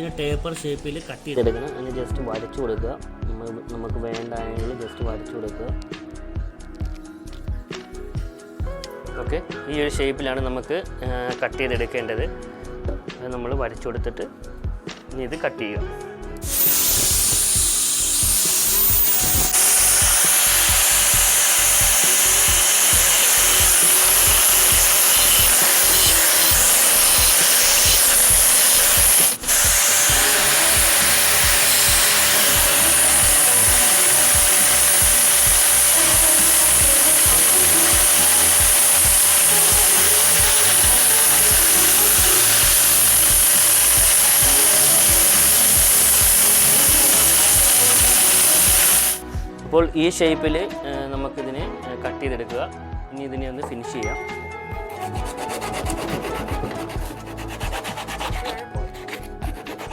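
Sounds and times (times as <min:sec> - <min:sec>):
power tool cutting bamboo: 0:16.4 - 0:49.3, 0:55.1 - 0:59.9.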